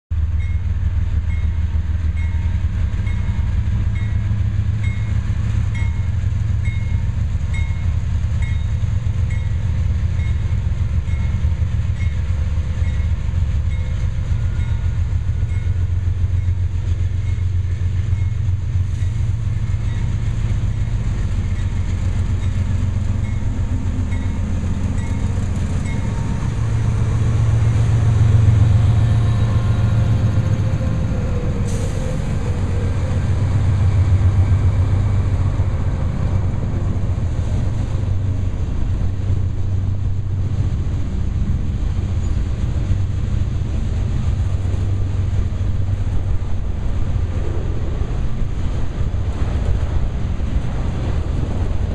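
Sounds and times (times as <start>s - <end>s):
diesel locomotives rumbling: 0.1s - 51.9s
crossing warning bell ringing: 0.2s - 30.8s.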